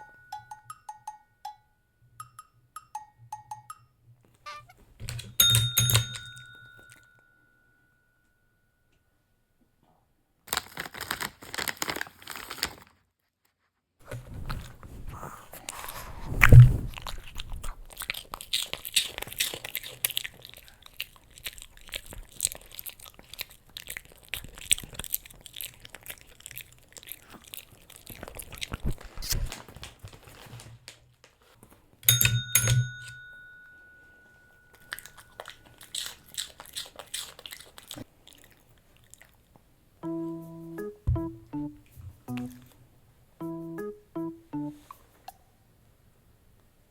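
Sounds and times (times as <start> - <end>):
tap bell ringing: 5.4 - 7.5, 32.0 - 34.8
dog chewing a hard treat: 14.0 - 29.6, 34.3 - 39.5.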